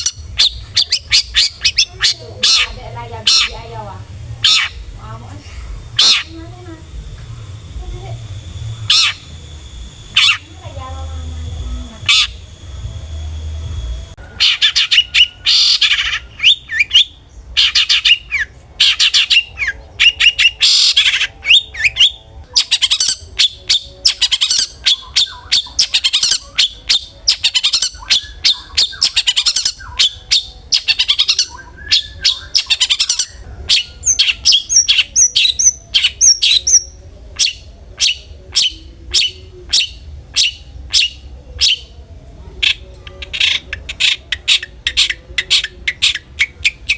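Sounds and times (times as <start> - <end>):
shrike calling harshly: 0.0 - 46.9.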